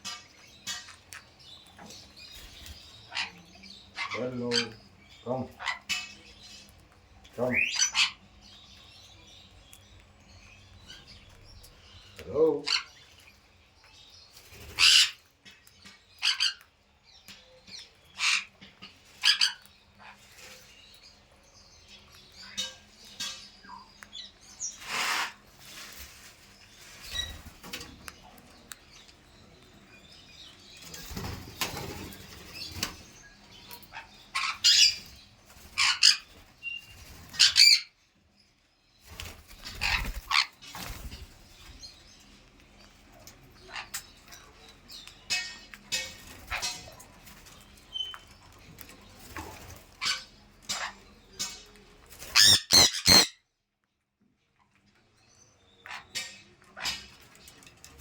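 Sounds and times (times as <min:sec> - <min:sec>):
parrot high-pitched calls: 0:14.7 - 0:15.2, 0:19.2 - 0:20.2, 0:52.2 - 0:53.4
parrot flapping wings: 0:39.0 - 0:41.7.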